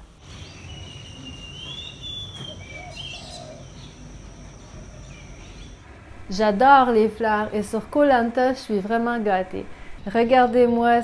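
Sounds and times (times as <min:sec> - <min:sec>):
birds whistling calls: 0:00.2 - 0:05.8.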